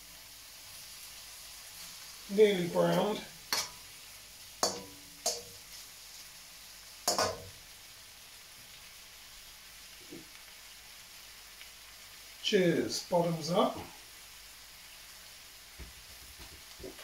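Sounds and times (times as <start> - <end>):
meat sizzling in a wok: 0.0 - 17.0
metal spatula clanking on wok: 3.5 - 3.8, 4.6 - 5.6, 7.1 - 7.6.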